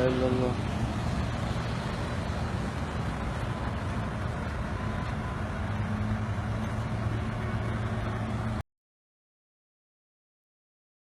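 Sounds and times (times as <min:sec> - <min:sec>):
continuous rushing noise: 0:00.0 - 0:08.6
vehicle engine humming: 0:00.0 - 0:08.6.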